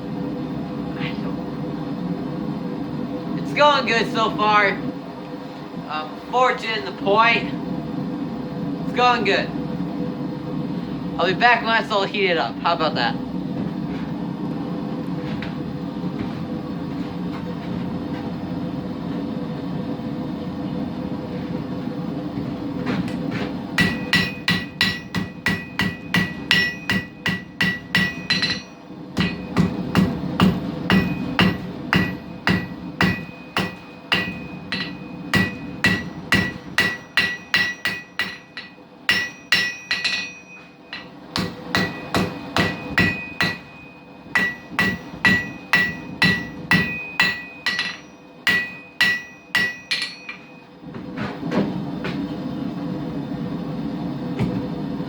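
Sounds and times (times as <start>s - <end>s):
hammer ringing on anvil: 23.8s - 50.7s.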